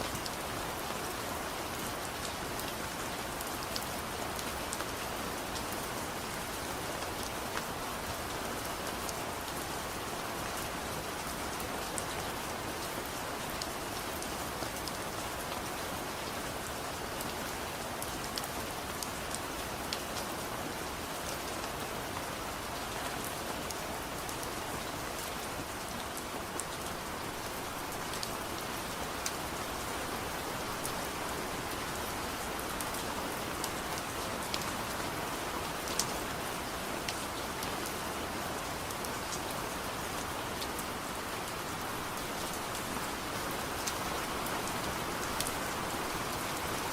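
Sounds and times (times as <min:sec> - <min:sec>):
soft rain falling: 0:00.0 - 0:46.9.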